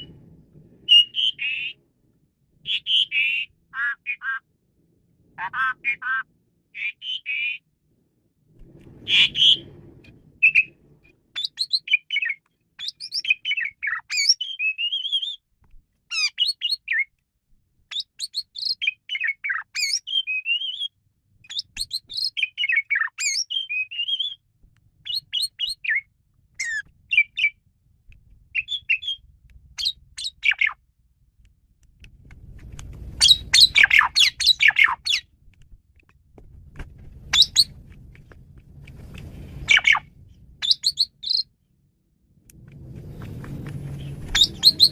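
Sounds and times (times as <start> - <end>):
starling singing whistles and chirps: 0.8 - 1.8, 6.8 - 7.6, 9.0 - 9.7, 10.4 - 15.4, 16.1 - 17.1, 17.9 - 24.4, 25.0 - 27.6, 28.5 - 30.8, 33.2 - 35.3, 37.3 - 37.8, 39.6 - 41.5, 44.0 - 44.9
rapid scratchy bird notes: 42.9 - 44.9.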